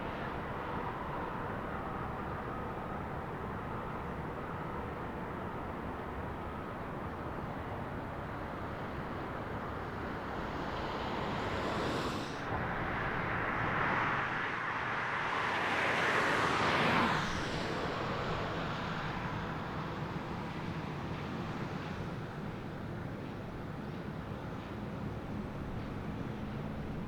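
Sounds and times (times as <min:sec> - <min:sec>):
jet airliner passing: 0:07.4 - 0:22.6.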